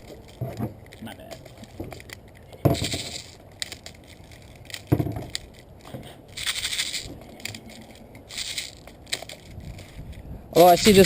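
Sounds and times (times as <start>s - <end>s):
hissy rustles: 6.3s - 10.4s.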